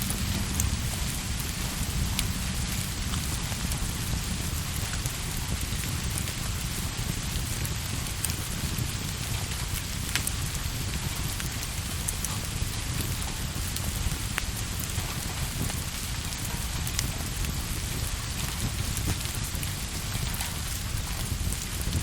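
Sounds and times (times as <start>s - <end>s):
steady rain: 0.0s - 22.0s.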